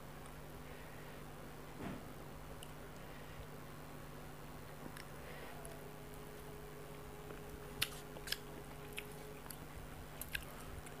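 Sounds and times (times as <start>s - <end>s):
faint steady hum: 0.0s - 11.0s
quiet chewing: 6.9s - 11.0s.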